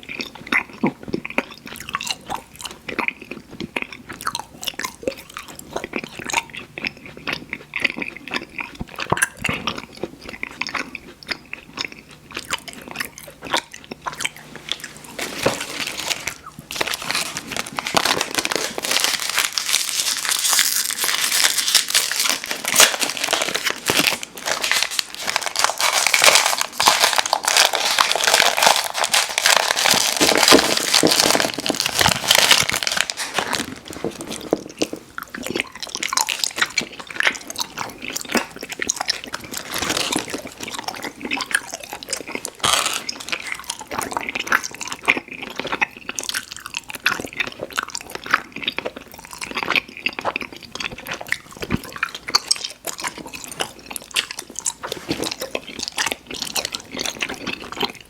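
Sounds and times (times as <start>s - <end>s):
chewing chewy candy: 0.0s - 58.0s.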